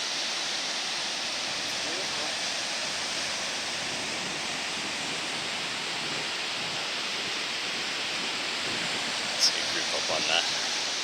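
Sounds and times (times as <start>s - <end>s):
river roaring through gorge: 0.0s - 11.0s.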